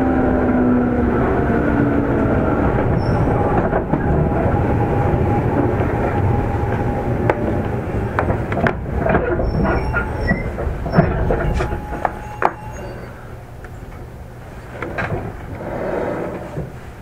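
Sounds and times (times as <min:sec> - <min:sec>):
electric train running: 0:00.0 - 0:17.0
wheels clicking and knocking: 0:02.3 - 0:17.0
light wheel squeal: 0:02.9 - 0:03.5, 0:09.4 - 0:13.9.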